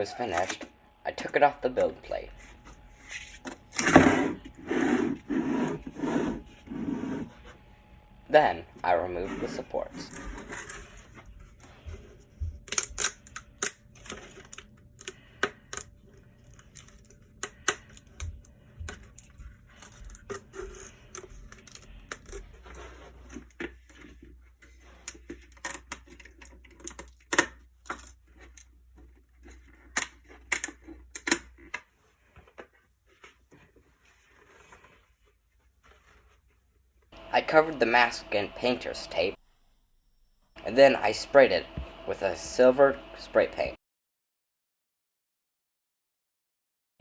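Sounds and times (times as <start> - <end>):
plastic snapping and cracking: 12.6 - 15.9.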